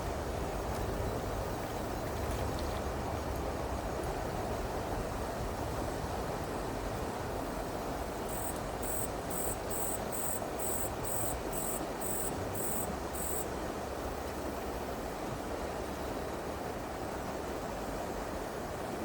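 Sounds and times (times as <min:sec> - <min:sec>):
cricket chirping: 0:08.3 - 0:13.5.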